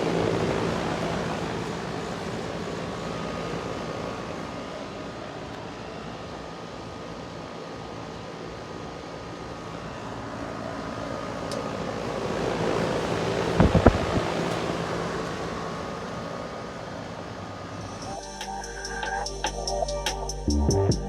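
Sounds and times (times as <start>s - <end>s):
faint constant tones: 0.0s - 21.0s
heat pump fan and compressor hum: 0.0s - 21.0s
sharp thumps: 13.6s - 14.3s.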